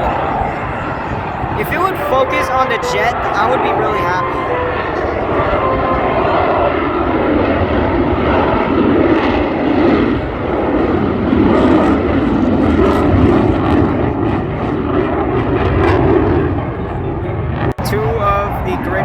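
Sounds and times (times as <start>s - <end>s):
jet engine rumble: 0.0s - 19.0s.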